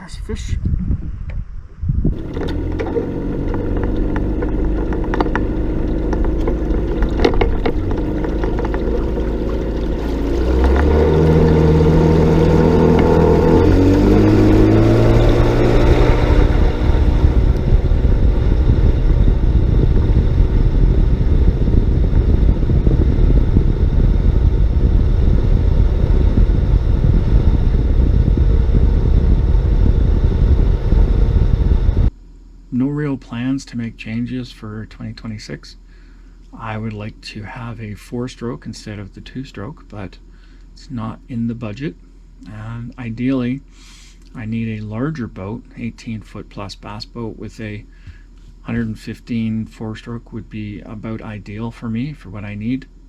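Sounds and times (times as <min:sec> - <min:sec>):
two-stroke outboard motor running: 0:02.1 - 0:32.1.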